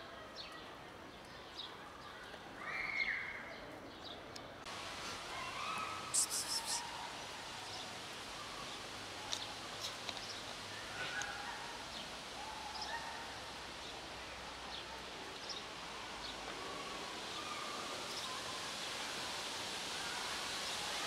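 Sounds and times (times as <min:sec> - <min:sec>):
steady background hiss: 0:04.6 - 0:21.0.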